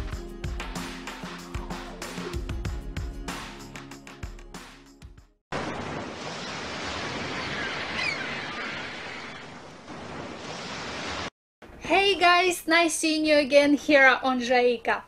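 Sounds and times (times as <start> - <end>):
music: 0.0 - 5.4
wind: 5.5 - 12.3
sea waves: 5.6 - 11.3.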